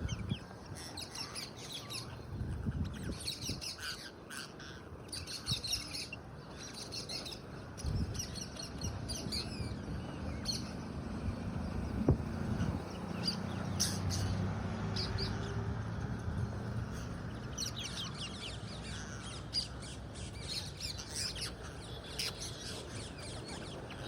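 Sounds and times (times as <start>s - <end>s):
parakeets squawking: 0.0s - 9.7s, 16.9s - 24.0s.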